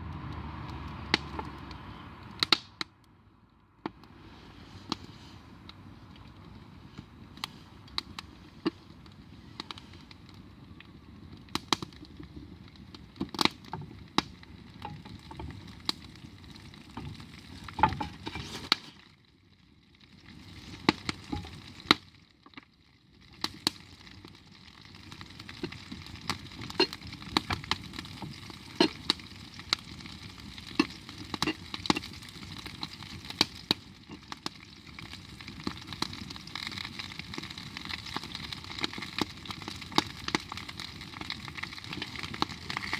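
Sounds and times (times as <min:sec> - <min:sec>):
sharp pops and crackles: 0:00.0 - 0:42.9
food sizzling: 0:14.7 - 0:19.0, 0:20.4 - 0:22.0, 0:23.4 - 0:42.9.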